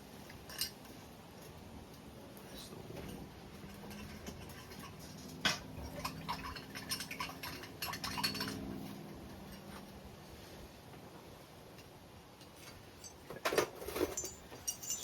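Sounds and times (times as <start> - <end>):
light metallic clinks: 0.2 - 1.0, 2.5 - 8.8, 11.7 - 13.3, 13.9 - 15.0.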